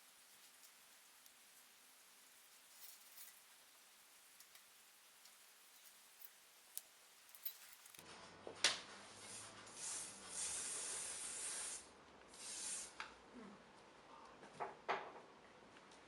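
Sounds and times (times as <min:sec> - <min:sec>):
aerosol spray can hissing: 0:09.8 - 0:13.0.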